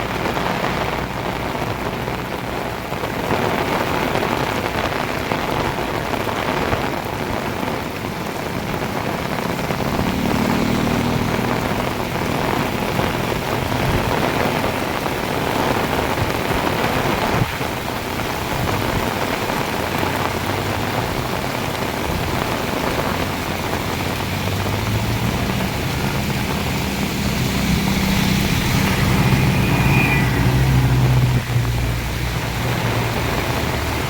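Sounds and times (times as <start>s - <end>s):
heavy rain pouring: 0.0s - 34.0s
vehicle engine approaching: 7.4s - 16.4s, 19.5s - 34.0s.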